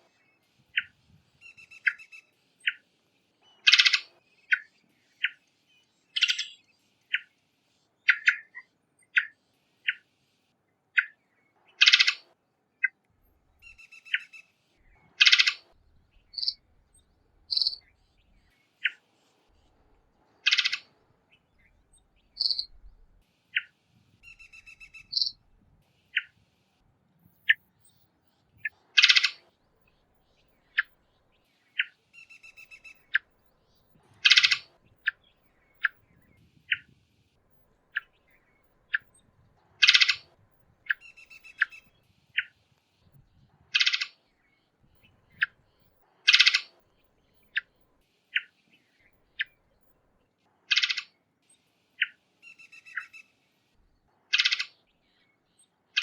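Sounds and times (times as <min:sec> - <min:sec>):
thrush calling: 0:15.2 - 0:15.7, 0:20.4 - 0:20.9, 0:28.6 - 0:29.5, 0:34.2 - 0:35.2, 0:39.8 - 0:40.3.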